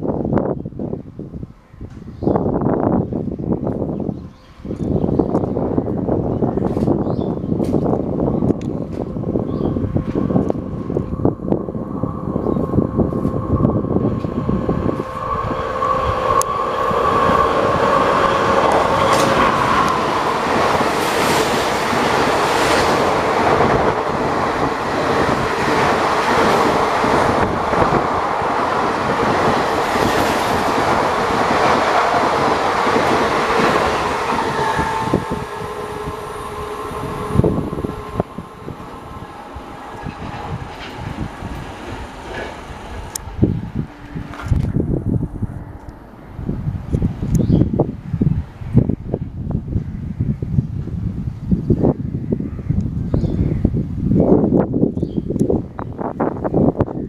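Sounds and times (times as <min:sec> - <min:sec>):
train coaches rushing past: 0:08.8 - 0:47.2.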